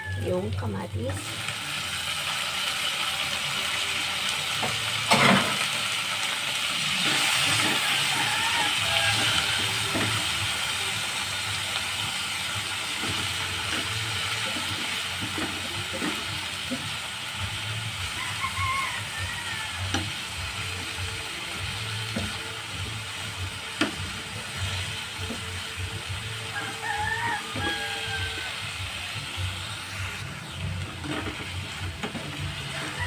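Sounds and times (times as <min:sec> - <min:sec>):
vegetables frying in oil: 0:00.0 - 0:33.0
spatula scraping and tapping pan: 0:30.8 - 0:33.0.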